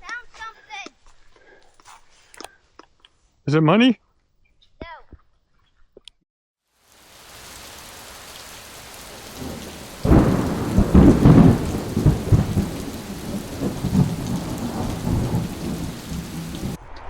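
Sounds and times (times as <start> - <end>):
rain hissing: 6.7 - 16.8
thunder rumbling: 7.2 - 17.0.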